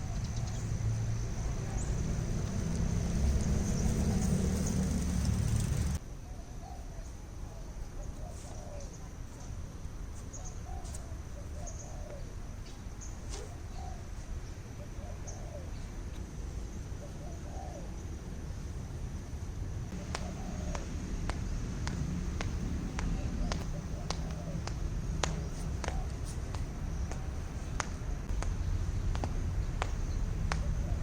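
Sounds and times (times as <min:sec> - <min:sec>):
faint background noise: 0:00.0 - 0:31.0
birds calling: 0:19.9 - 0:31.0.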